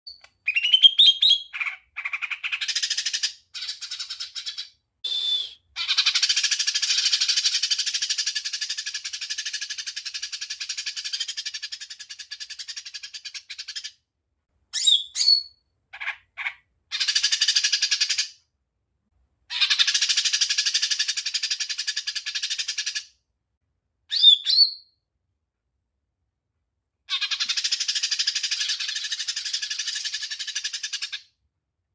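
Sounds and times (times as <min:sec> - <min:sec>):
bird rising whistles: 0:05.1 - 0:05.6.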